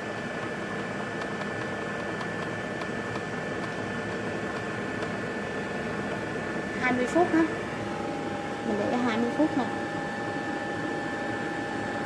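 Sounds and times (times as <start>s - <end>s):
air fryer fan whirring: 0.0s - 12.0s
thin high whine: 3.3s - 12.0s.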